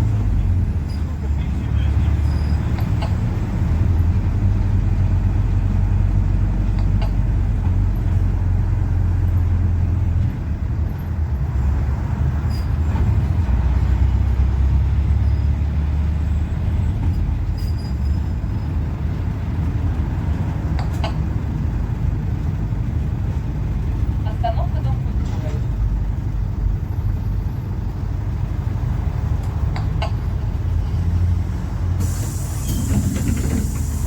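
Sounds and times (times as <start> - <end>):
bus diesel engine droning: 0.0 - 34.0
road noise: 0.0 - 34.0.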